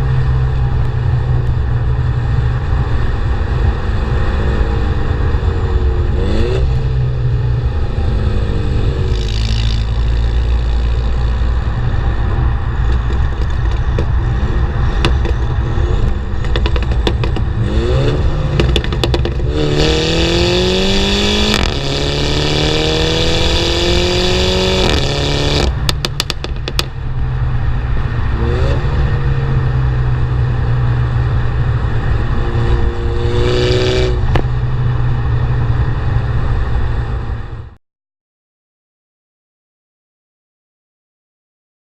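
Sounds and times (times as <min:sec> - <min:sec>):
car engine revving: 0:00.0 - 0:37.6
exhaust crackling pops: 0:12.8 - 0:14.3, 0:14.9 - 0:19.7, 0:21.5 - 0:21.8, 0:24.8 - 0:27.0, 0:34.1 - 0:34.6.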